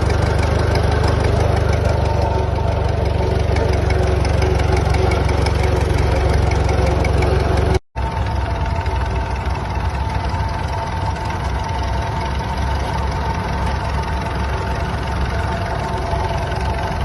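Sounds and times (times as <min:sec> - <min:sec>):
old engine idling: 0:00.0 - 0:17.0
faint steady whine: 0:08.0 - 0:17.0.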